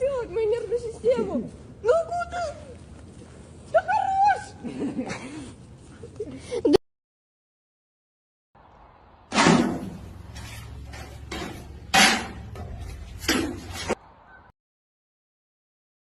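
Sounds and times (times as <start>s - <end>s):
sharp ringing bangs: 9.3s - 10.2s.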